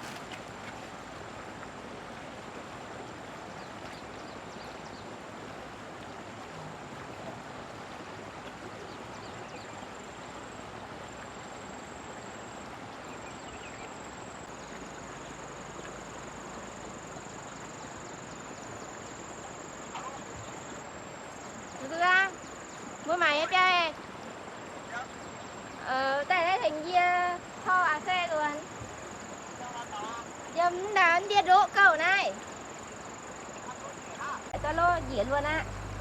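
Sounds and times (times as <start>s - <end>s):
floodwater rushing: 0.0s - 25.7s, 28.9s - 36.0s
high whine: 34.6s - 36.0s.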